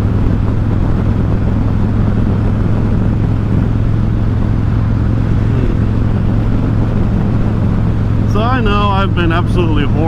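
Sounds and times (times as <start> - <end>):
motorcycle engine drone: 0.0 - 10.0
riding noise rush: 0.9 - 10.0.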